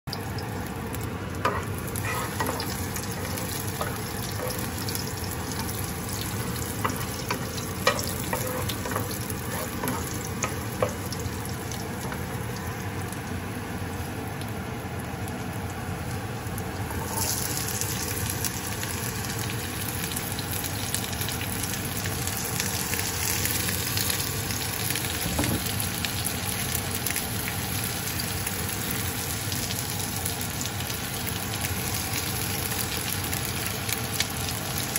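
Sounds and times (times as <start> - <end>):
garlic sizzling in oil: 0.1 - 34.9.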